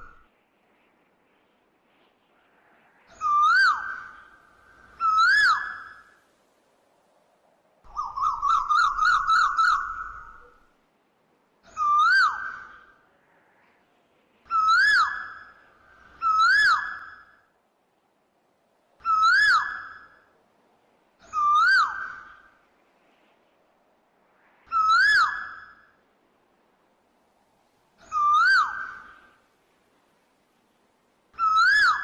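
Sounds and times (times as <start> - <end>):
bird trill: 7.9 - 10.6, 11.7 - 12.9, 21.2 - 22.4, 28.0 - 29.3, 31.4 - 32.0.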